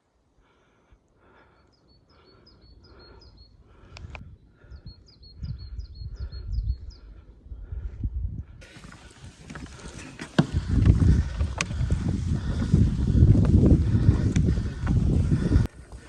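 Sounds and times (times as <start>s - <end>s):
wind rumbling on microphone: 3.6s - 16.0s.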